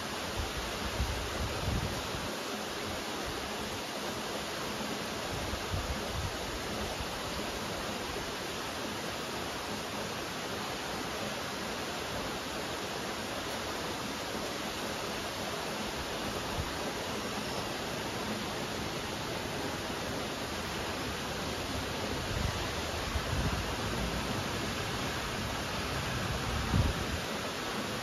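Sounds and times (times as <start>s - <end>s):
steady rain hiss: 0.0s - 28.0s.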